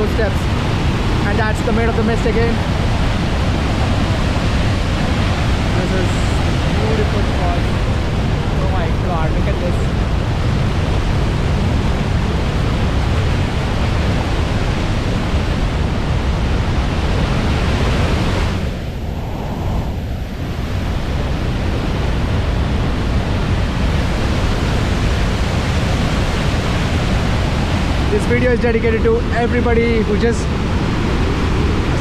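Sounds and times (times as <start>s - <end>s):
waterfall rushing: 0.0s - 16.1s.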